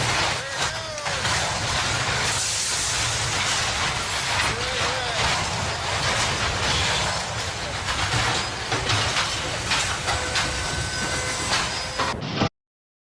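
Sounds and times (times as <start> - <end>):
train rattling clatter: 0.0 - 12.2
faint high squeal: 10.0 - 12.2.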